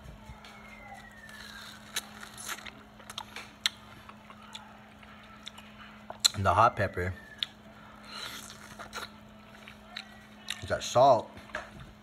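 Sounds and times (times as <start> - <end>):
chewing crunchy fruit: 0.3 - 12.0.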